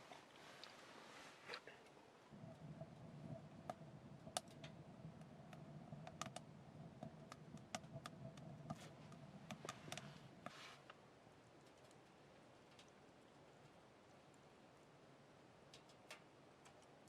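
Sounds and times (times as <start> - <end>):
low steady hum: 0.0 - 17.0
wood fire crackling: 0.0 - 17.0.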